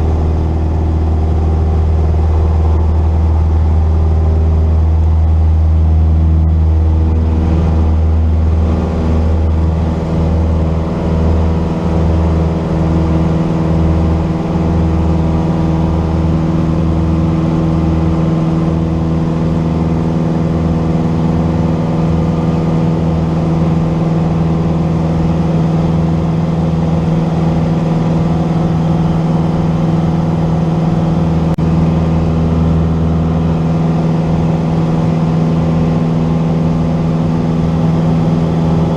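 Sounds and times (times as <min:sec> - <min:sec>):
propeller plane engine droning: 0:00.0 - 0:38.9.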